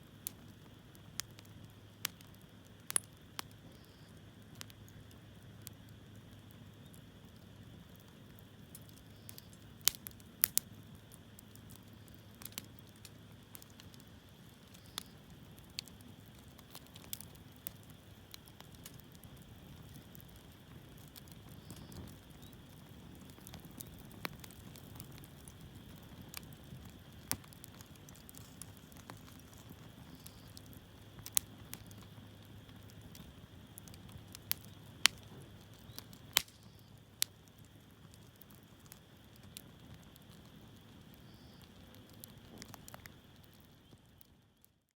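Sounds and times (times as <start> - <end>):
campfire crackling and popping: 0.0 - 44.9
low rumble of flames: 0.0 - 44.9.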